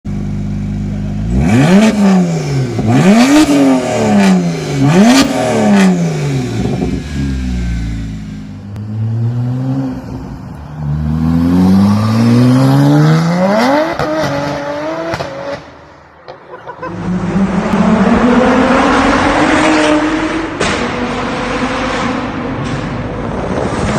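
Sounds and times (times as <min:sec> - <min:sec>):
car exhaust revving: 0:00.1 - 0:10.0.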